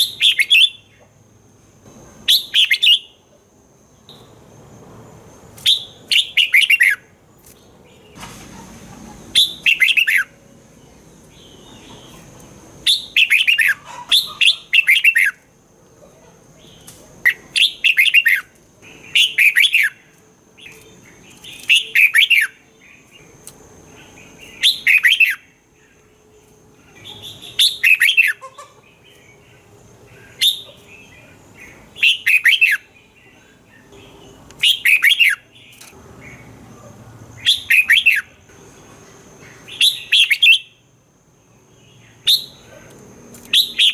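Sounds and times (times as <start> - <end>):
bulbul singing whistled phrases: 0.0 - 1.0, 2.2 - 3.2, 5.6 - 7.1, 9.3 - 10.4, 11.3 - 15.5, 16.7 - 23.3, 24.0 - 26.0, 26.9 - 28.7, 30.1 - 36.5, 37.4 - 38.4, 39.5 - 40.8, 42.0 - 42.8, 43.5 - 43.9.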